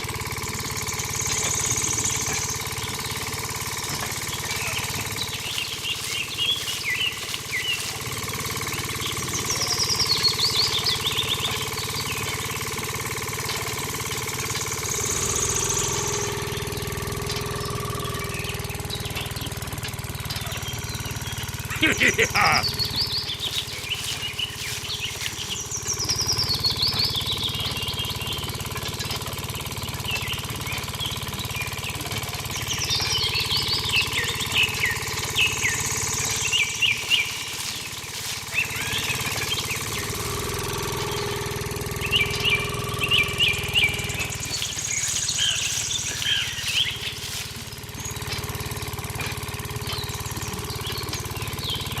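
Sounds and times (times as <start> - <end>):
birds chirping and twittering: 0.0 - 52.0
small engine humming: 0.0 - 52.0.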